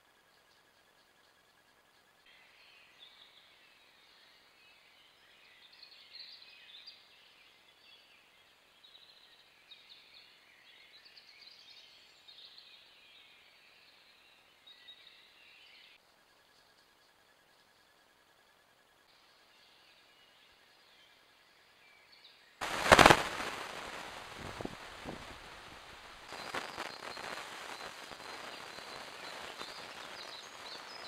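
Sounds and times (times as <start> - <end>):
songbird singing: 0.0 - 31.0
steady hiss: 22.6 - 31.0.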